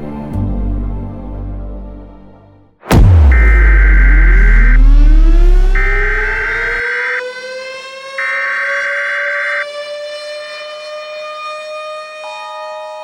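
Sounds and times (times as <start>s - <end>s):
warning siren rising tone: 2.9s - 13.0s.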